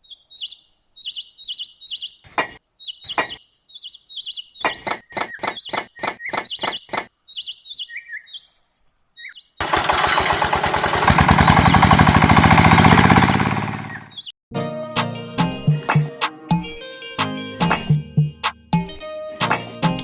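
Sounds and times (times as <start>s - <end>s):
bird chirps: 0.0s - 9.6s, 13.9s - 14.4s.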